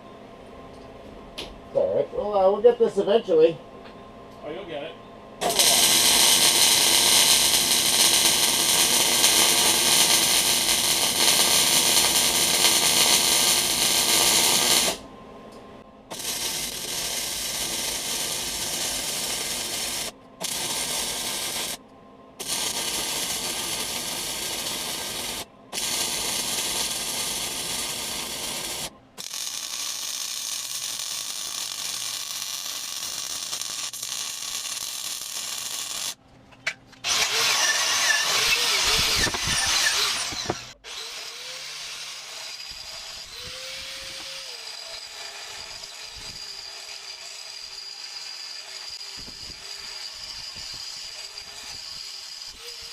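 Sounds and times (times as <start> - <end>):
welding arc crackling and hissing: 5.4 - 15.0, 16.1 - 21.8, 22.4 - 36.2, 37.1 - 52.9.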